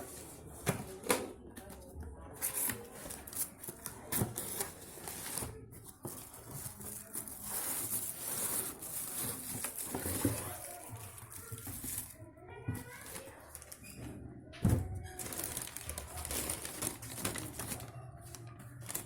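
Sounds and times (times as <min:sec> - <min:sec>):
packaging rustling: 0:02.5 - 0:12.2, 0:15.1 - 0:19.0.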